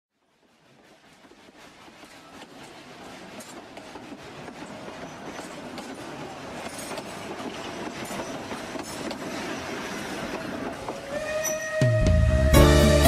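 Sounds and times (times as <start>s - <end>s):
train wheels clattering on rails: 0.2s - 11.8s.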